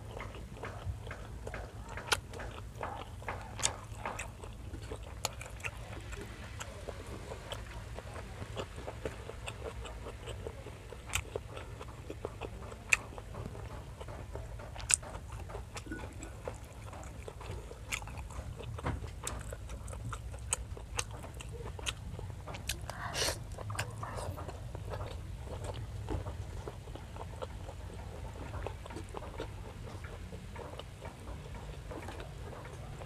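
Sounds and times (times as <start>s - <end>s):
wet chewing and smacking: 0.0s - 33.0s
food snapping: 0.1s - 6.2s, 8.4s - 23.0s.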